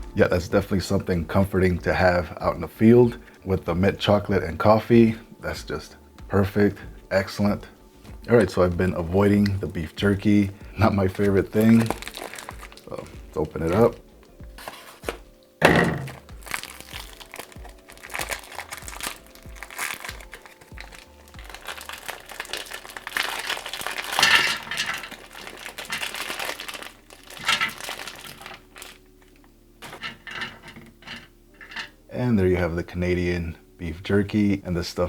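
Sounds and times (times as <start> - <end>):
background music: 0.0 - 35.0
plastic packet crinkling: 9.4 - 14.0, 16.0 - 30.5
packet ripping: 11.1 - 14.0, 15.9 - 30.1.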